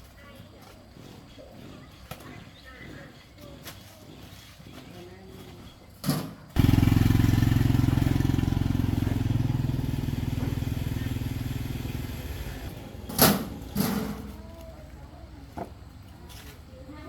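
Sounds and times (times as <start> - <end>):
small engine running: 6.5 - 14.4.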